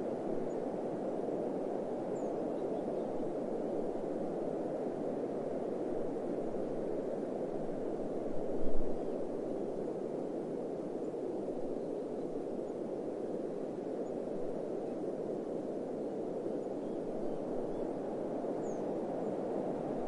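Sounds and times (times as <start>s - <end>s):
low rushing desert wind noise: 0.0s - 20.0s.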